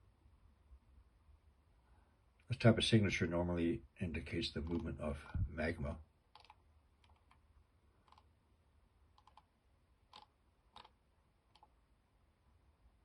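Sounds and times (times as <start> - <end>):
faint computer clicks: 9.1 - 9.5, 10.1 - 11.8.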